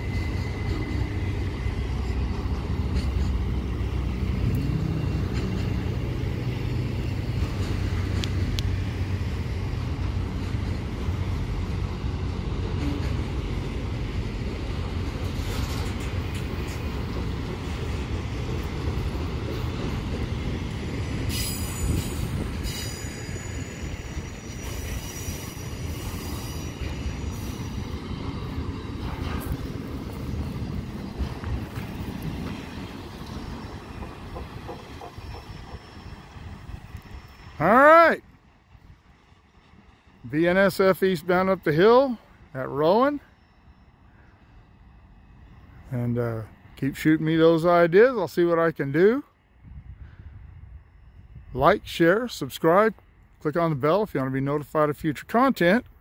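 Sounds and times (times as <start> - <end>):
freight train rumbling: 0.0 - 56.0
high-pitched wheel squeal: 21.3 - 27.9, 33.3 - 37.7.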